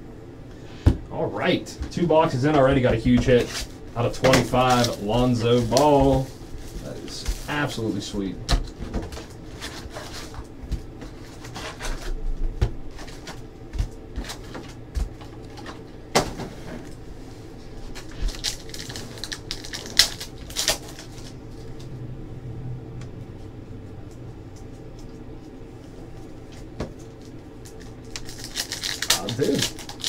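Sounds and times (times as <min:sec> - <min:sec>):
cards and packaging rustling: 0:02.8 - 0:12.2, 0:17.9 - 0:22.0, 0:26.6 - 0:30.0.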